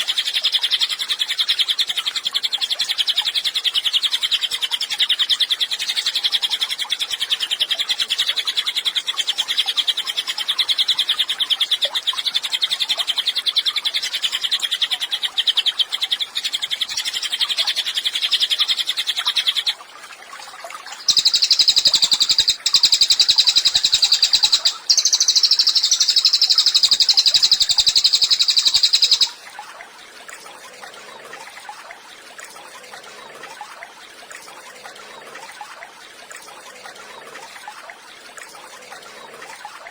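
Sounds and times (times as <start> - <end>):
bird singing fast trills: 0.0 - 19.8, 21.0 - 29.4.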